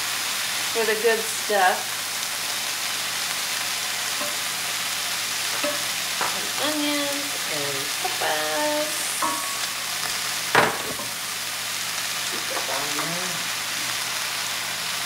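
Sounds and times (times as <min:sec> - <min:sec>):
food sizzling in a skillet: 0:00.0 - 0:15.0.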